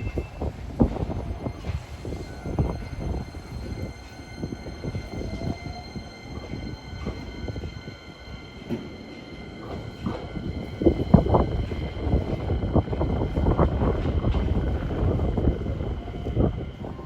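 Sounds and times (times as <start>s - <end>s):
electric train rumbling past: 0.0s - 17.0s.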